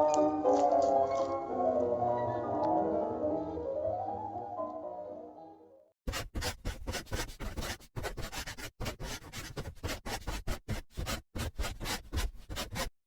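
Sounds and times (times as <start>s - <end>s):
rapid scratching and rubbing: 6.1s - 13.0s.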